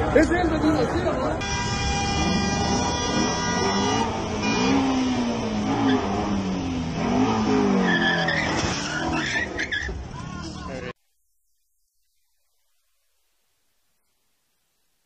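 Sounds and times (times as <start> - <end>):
car horn: 1.4 - 5.2
car engine revving: 1.5 - 9.6
tyres squealing: 7.8 - 10.9.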